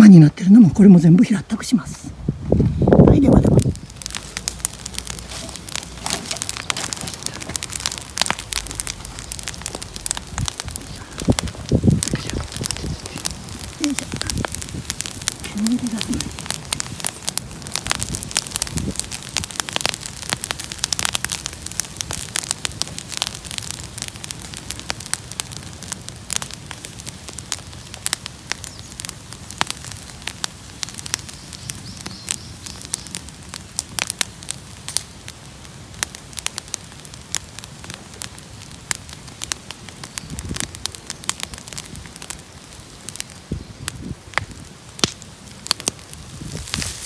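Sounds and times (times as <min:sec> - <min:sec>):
bonfire crackling and popping: 0:00.0 - 0:47.0
hiss of burning: 0:02.2 - 0:47.0.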